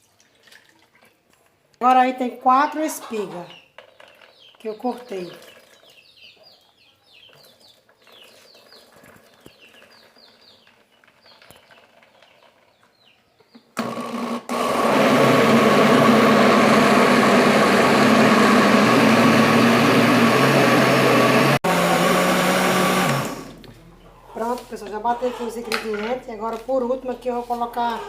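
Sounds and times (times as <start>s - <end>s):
electric blender whirring: 13.8s - 23.7s.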